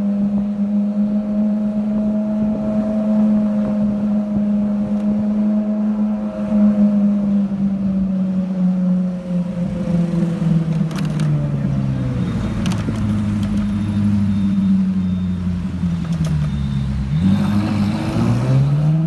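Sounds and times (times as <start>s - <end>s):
car engine accelerating: 15.5s - 19.0s.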